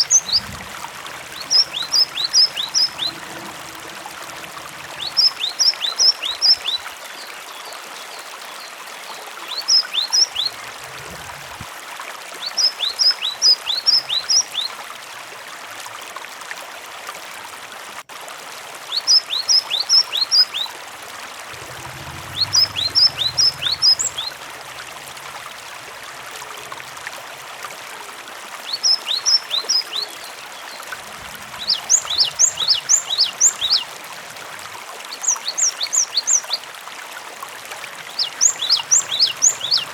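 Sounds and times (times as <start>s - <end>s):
bird calling high falling notes: 0.0s - 7.0s, 21.5s - 26.7s
running water: 0.0s - 39.9s.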